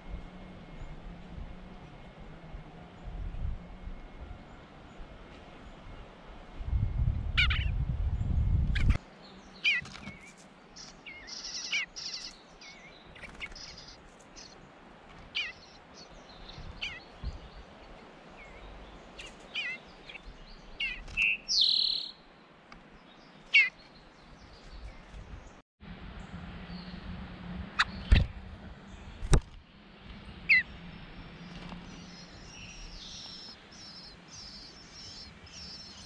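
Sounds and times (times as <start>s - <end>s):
songbird chirps: 7.4s - 27.2s, 27.8s - 36.0s
raspy buzzy bird calls: 8.8s - 14.6s, 15.3s - 17.2s, 19.2s - 22.2s, 23.5s - 23.8s, 30.4s - 30.9s, 31.9s - 36.0s.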